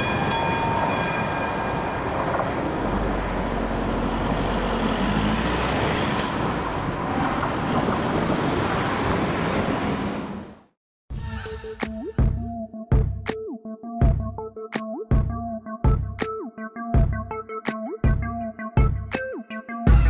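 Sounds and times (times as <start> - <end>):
road traffic passing: 0.0 - 10.8.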